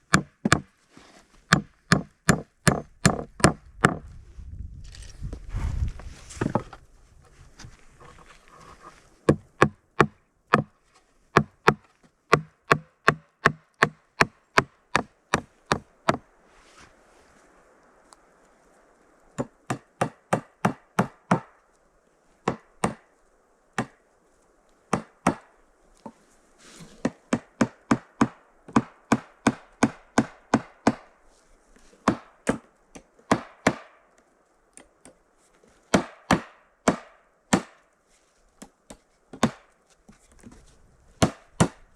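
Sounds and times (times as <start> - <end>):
axe chopping wood: 0.1 - 0.7, 1.5 - 4.0, 9.3 - 10.7, 11.4 - 16.2, 19.4 - 21.5, 22.5 - 23.0, 23.8 - 24.0, 24.9 - 25.5, 27.0 - 31.1, 32.0 - 34.0, 35.9 - 37.8, 38.6 - 39.7, 41.2 - 41.8.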